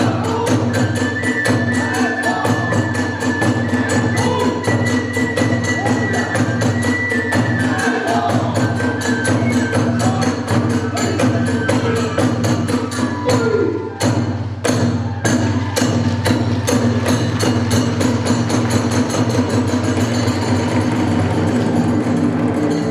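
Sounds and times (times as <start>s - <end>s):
high flute melody: 0.0s - 19.6s
drum beats: 0.0s - 22.9s
hand cymbals clashing: 15.4s - 22.9s.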